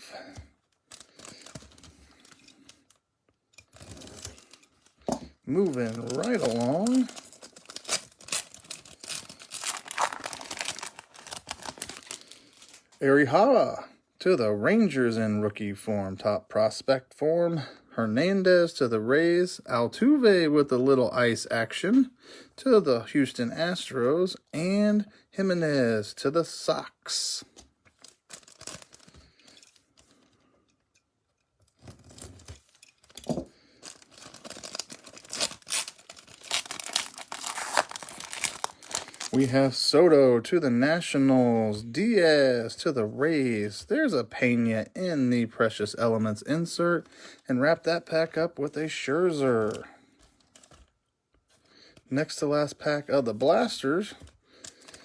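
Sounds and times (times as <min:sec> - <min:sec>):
foil wrapper crinkling: 0:00.3 - 0:03.0, 0:03.6 - 0:13.0, 0:27.9 - 0:30.2, 0:31.7 - 0:39.6, 0:49.6 - 0:50.9.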